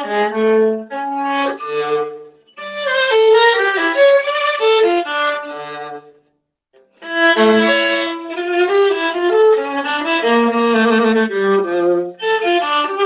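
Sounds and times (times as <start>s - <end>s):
solo viola melody: 0.0s - 13.0s.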